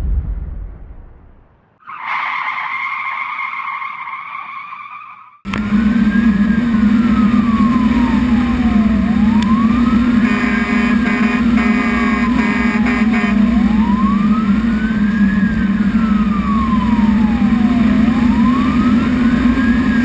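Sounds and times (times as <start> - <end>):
low rumble: 0.0 - 1.8
fire engine siren wailing: 1.8 - 20.0
truck engine drone: 1.8 - 20.0.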